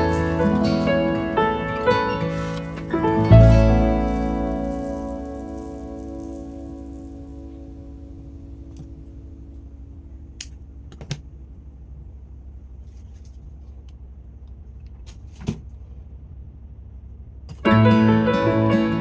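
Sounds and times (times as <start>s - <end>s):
background music: 0.0s - 7.8s
low steady hum: 0.0s - 14.9s.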